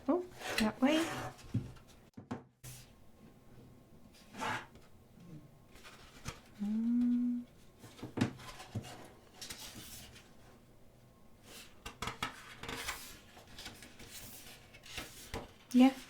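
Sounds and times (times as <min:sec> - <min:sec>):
person humming: 0:06.6 - 0:07.5
book pages turning: 0:11.4 - 0:15.5
paper rustling: 0:11.4 - 0:16.0.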